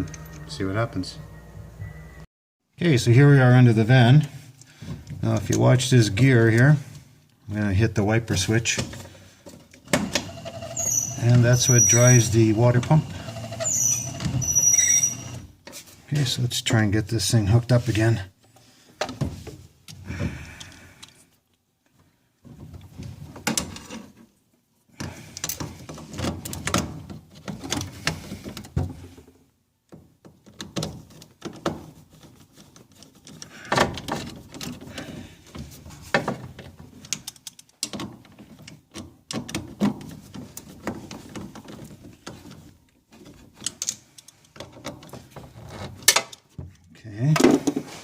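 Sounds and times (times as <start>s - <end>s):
tools clicking and clunking on metal: 29.9s - 46.7s.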